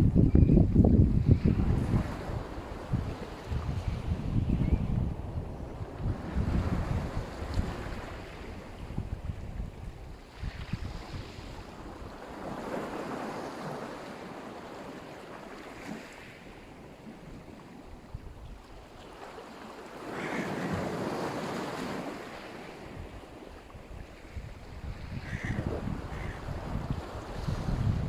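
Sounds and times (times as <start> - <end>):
wind rumble on microphone: 0.0 - 13.9, 15.7 - 19.0, 20.6 - 28.0
waves breaking and washing in: 0.0 - 28.0.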